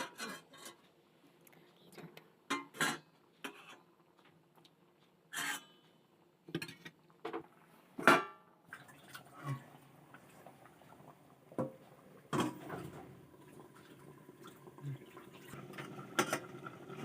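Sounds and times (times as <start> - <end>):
dishes and utensils clinking: 0.0 - 0.9, 2.5 - 3.9.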